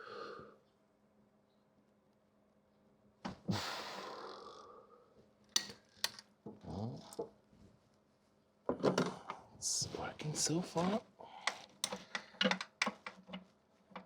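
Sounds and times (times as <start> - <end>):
hiss: 3.5 - 4.3.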